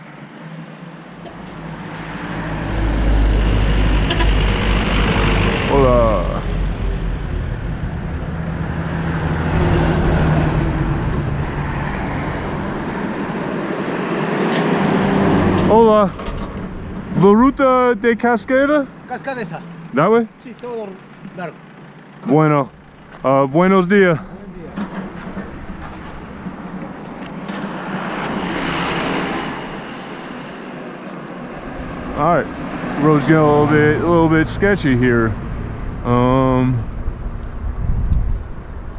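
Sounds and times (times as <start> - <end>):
vehicle engine running: 1.2 - 14.0, 15.4 - 28.7, 31.5 - 38.9
low rumble: 2.6 - 13.7, 33.8 - 38.9.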